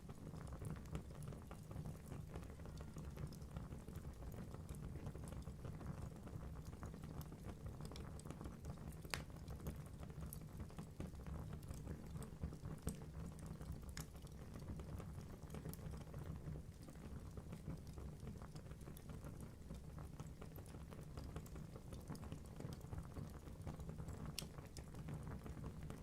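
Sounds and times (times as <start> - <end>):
logs crackling and popping: 6.7 - 10.4, 11.5 - 14.7, 15.4 - 26.0.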